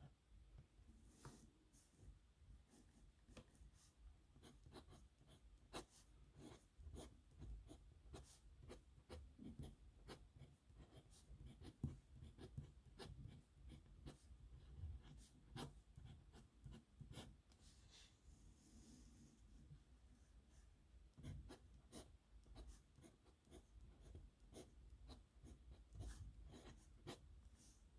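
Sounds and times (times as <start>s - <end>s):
pen scratching on paper: 4.4s - 17.4s, 21.2s - 27.2s.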